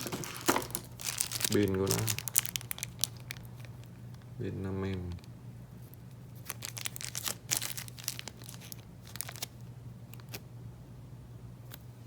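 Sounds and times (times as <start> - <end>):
packaging crinkling: 0.0 - 4.3, 6.4 - 10.4
low steady hum: 0.0 - 12.0.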